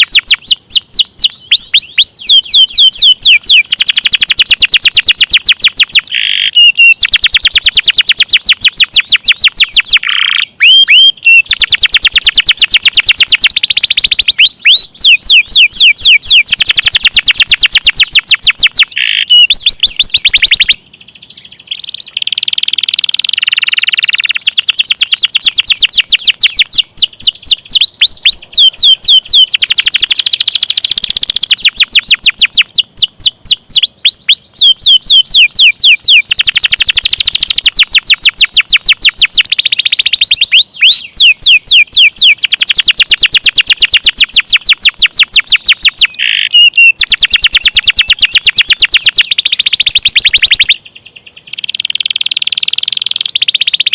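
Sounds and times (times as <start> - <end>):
canary singing trills: 0.0 - 53.9.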